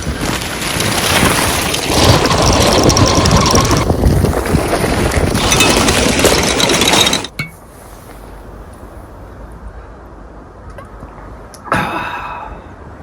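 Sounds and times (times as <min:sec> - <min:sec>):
strong wind on microphone: 0:00.0 - 0:07.3.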